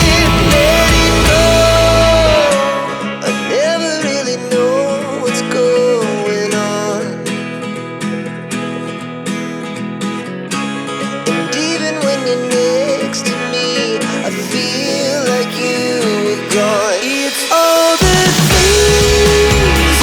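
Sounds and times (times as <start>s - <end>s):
strummed acoustic guitar: 0.0s - 20.0s.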